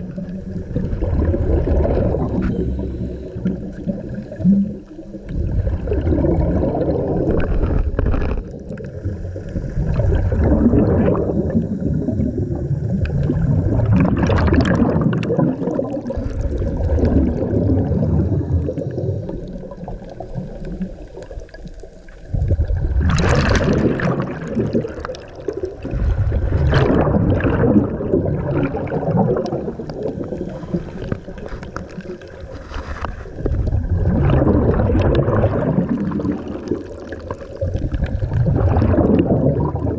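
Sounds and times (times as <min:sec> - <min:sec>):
bubbles gurgling underwater: 0:00.0 - 0:39.9
diver breathing through regulator: 0:02.0 - 0:04.1.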